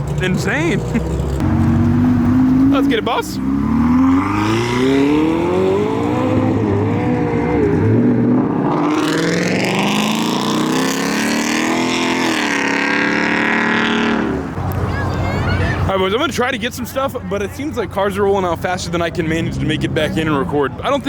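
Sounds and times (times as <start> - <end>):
car engine revving hard: 0.4 - 14.6.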